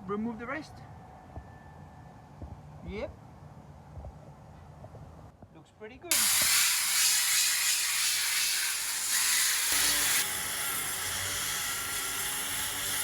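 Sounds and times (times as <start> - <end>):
power sander whirring: 6.1 - 13.0.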